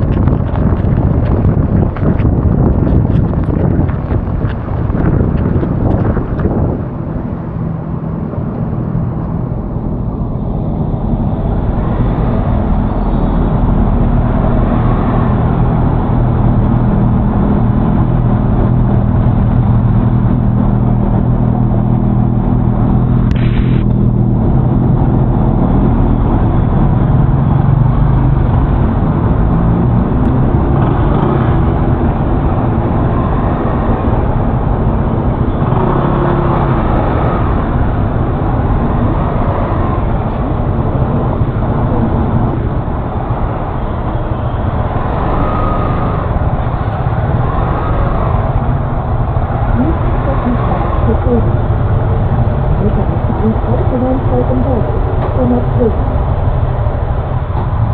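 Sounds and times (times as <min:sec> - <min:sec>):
scooter engine running: 0:00.0 - 0:07.8
wind and road noise: 0:00.0 - 0:57.9.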